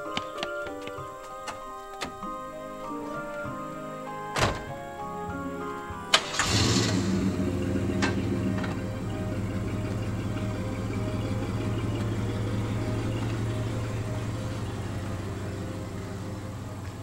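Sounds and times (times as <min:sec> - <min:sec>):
car engine idling: 0:06.1 - 0:17.0.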